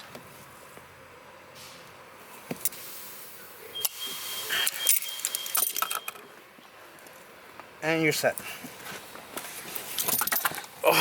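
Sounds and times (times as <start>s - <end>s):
faint high steady tone: 3.4s - 6.3s
small metal parts clicking and rattling: 4.6s - 6.2s, 9.8s - 10.7s.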